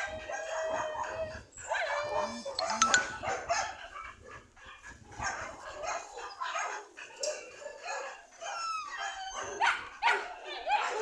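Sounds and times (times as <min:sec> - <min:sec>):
dog barking and yipping: 0:05.2 - 0:11.0.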